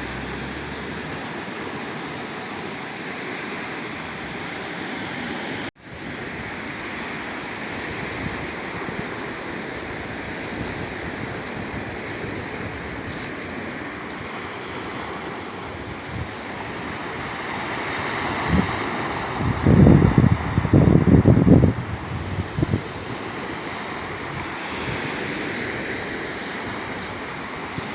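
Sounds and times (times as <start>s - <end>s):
surf breaking on shore: 0.0s - 27.9s
wind buffeting microphone: 5.8s - 27.9s.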